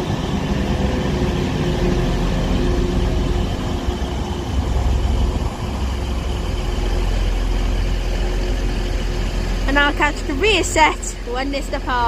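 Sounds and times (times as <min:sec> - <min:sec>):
diesel train engines humming: 0:00.0 - 0:12.0.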